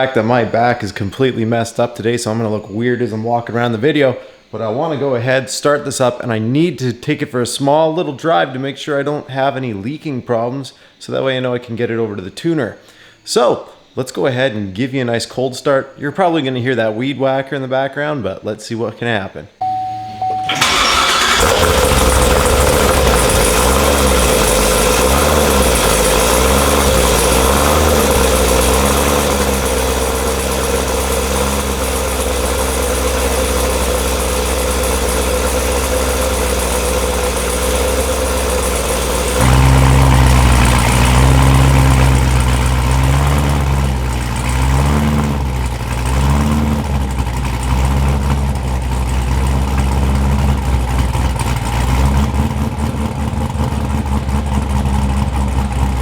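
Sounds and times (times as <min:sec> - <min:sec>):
lopey engine idling: 0:19.6 - 0:56.0.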